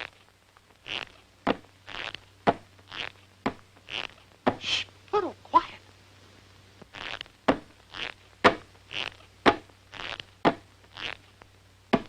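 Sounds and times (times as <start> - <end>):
short breathy hiss: 4.5 - 5.0.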